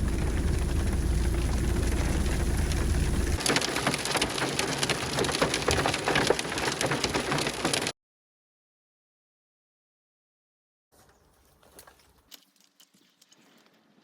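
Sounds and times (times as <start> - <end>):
low rumble: 0.0 - 3.4
hailstones striking hard surfaces: 0.0 - 7.9.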